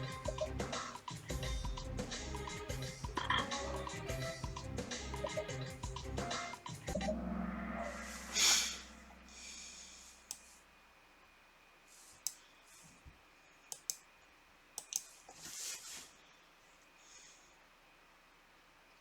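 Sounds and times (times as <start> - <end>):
soft breaths: 8.2 - 10.8, 11.8 - 13.7, 15.0 - 18.0
sharp clicks: 13.7 - 14.1, 14.8 - 15.1.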